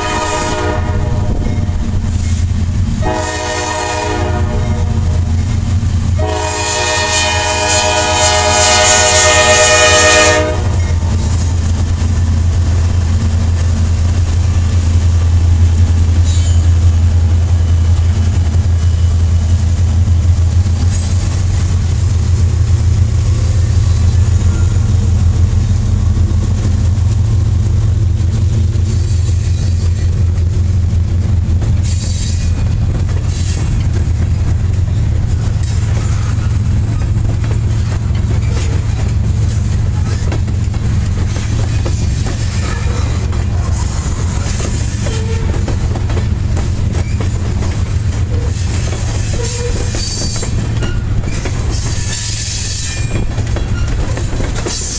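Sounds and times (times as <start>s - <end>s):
locomotive air horn blasts: 0.0s - 1.8s, 2.9s - 5.4s, 6.2s - 11.1s
low rumble of passing train: 0.0s - 54.9s.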